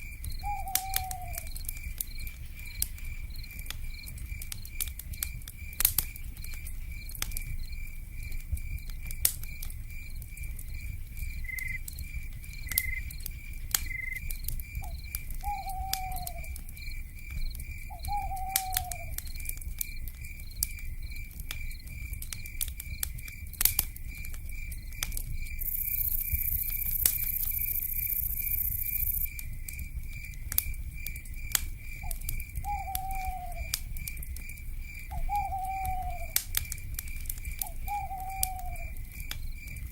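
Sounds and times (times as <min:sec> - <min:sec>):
campfire crackling and popping: 0:00.0 - 0:39.9
pulsing insect chirp: 0:00.0 - 0:39.9
owl hooting: 0:00.4 - 0:01.5, 0:15.4 - 0:16.6, 0:17.9 - 0:19.2, 0:32.6 - 0:33.7, 0:35.1 - 0:36.4, 0:37.6 - 0:39.0.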